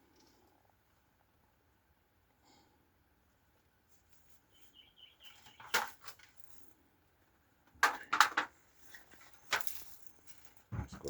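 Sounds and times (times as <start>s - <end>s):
knocks and scrapes of wood: 7.8s - 11.0s.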